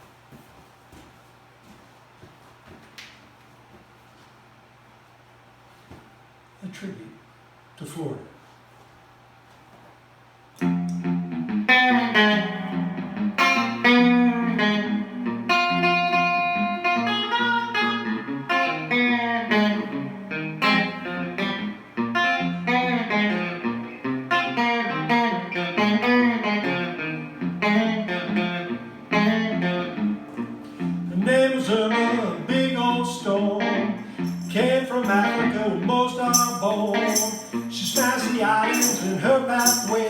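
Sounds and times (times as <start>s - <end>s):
solo guitar melody: 10.6s - 40.0s.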